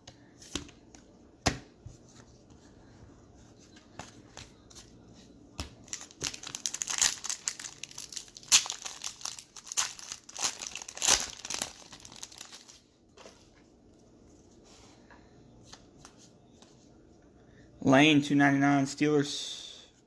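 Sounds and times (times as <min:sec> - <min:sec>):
foil wrapper crinkling and tearing: 0:05.8 - 0:12.8.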